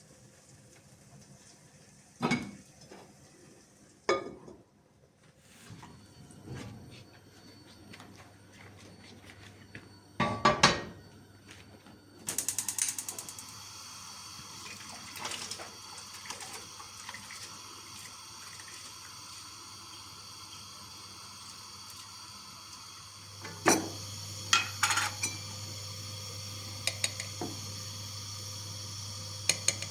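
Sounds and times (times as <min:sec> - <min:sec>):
gas flame hissing: 0:12.2 - 0:17.0, 0:19.0 - 0:29.9
gas stove igniter clicking: 0:26.8 - 0:27.7, 0:29.4 - 0:29.9.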